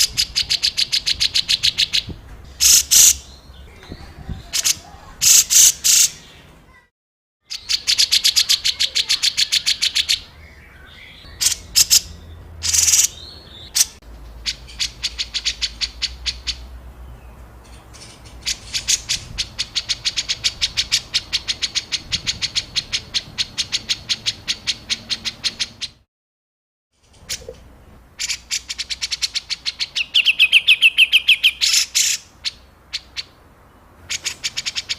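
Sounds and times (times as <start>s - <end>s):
songbird harsh rapid notes: 0.0s - 3.4s, 4.4s - 6.3s, 11.1s - 16.7s.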